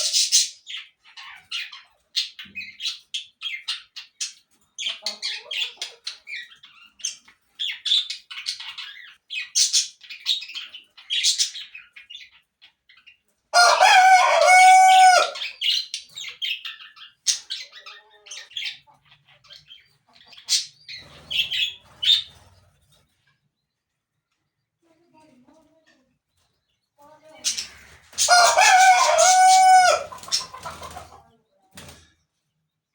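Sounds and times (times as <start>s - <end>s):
small birds chirping: 0.0s - 32.9s
rooster crowing: 13.6s - 15.4s, 28.2s - 30.1s.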